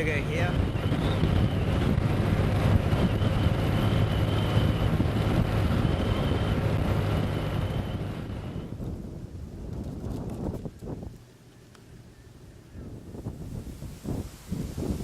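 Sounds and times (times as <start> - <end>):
engine deep hum: 0.0 - 9.3.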